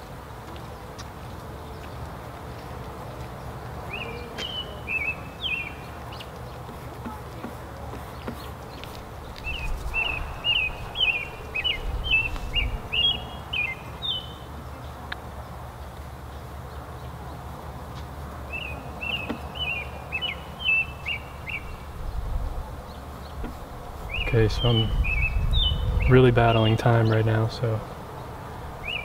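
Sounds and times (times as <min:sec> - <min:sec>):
songbird sliding chirps: 0:03.9 - 0:14.5, 0:18.5 - 0:21.9.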